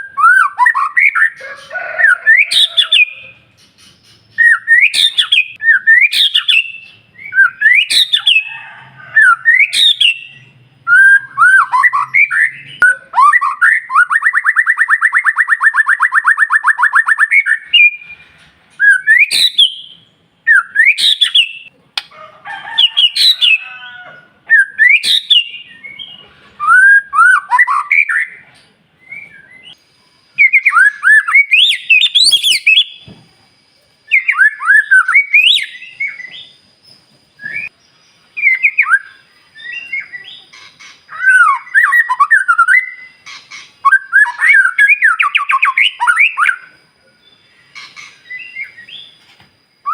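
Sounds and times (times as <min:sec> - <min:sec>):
bird singing whistled phrases: 0:00.0 - 0:01.4, 0:04.3 - 0:08.5, 0:09.2 - 0:18.2, 0:18.8 - 0:21.7, 0:24.5 - 0:28.4, 0:29.0 - 0:33.1, 0:34.0 - 0:36.6, 0:37.4 - 0:49.2.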